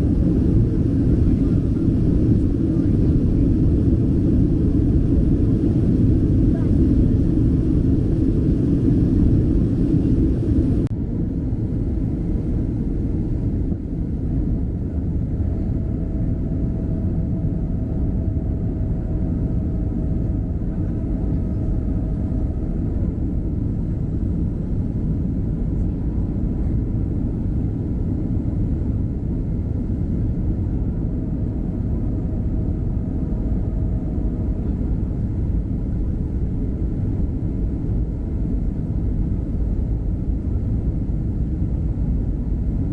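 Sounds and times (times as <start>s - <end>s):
rushing air: 0.0s - 10.9s
jet engine rumble: 0.0s - 42.9s.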